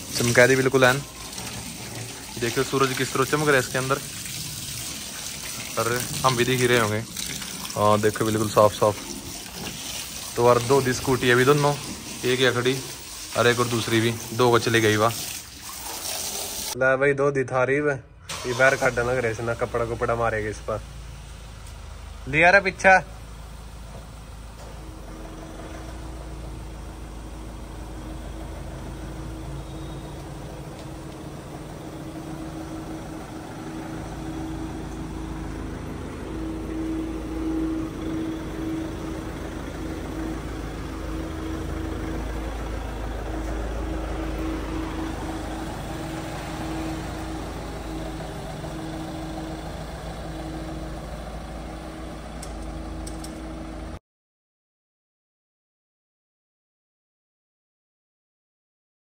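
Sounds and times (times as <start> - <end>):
engine idling: 0.0 - 15.1, 18.2 - 54.0.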